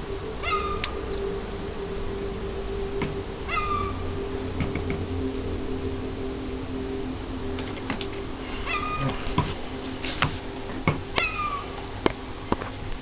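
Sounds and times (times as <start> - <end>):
seagull calling: 0.4 - 1.0, 3.5 - 4.1, 8.5 - 11.8.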